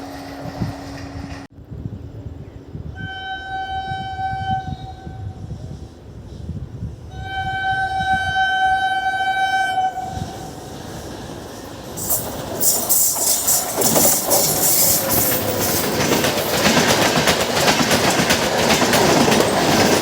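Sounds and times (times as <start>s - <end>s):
low rumble of slow train: 0.0s - 20.0s
locomotive horn blasts: 7.1s - 10.2s.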